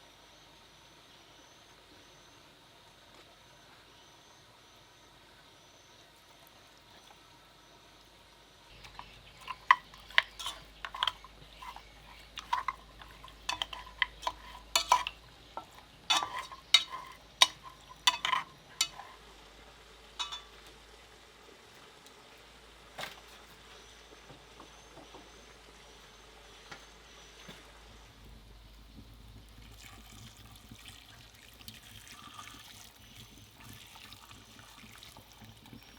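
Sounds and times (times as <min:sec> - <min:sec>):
utensil clinking against cookware: 0:08.7 - 0:19.2, 0:20.2 - 0:20.6.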